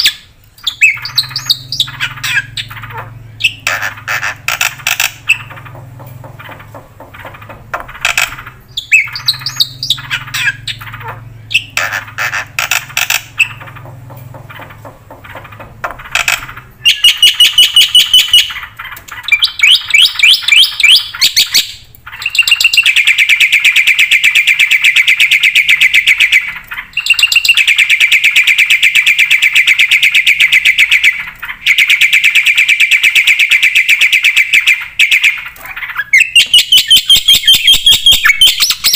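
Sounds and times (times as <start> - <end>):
starling calls and chattering: 0.0 - 38.9.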